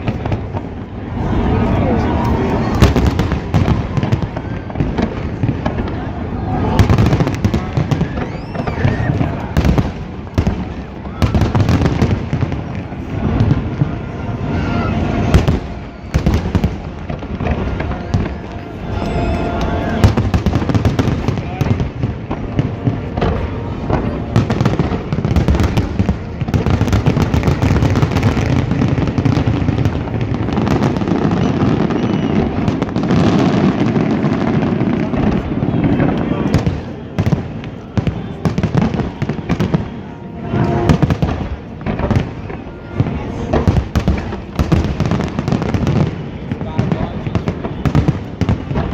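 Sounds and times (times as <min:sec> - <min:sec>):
fireworks bursting with loud bangs: 0:00.0 - 0:48.9
deep rumble of distant bursts: 0:08.8 - 0:46.6.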